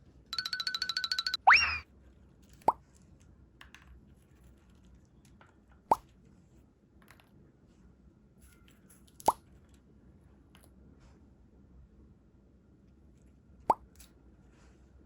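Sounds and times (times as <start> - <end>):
upward-sweeping pop blips: 0.4 - 1.8.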